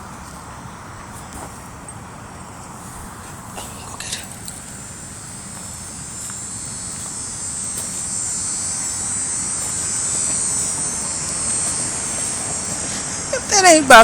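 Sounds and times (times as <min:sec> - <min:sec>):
high-pitched insect buzz: 0:03.9 - 0:14.0.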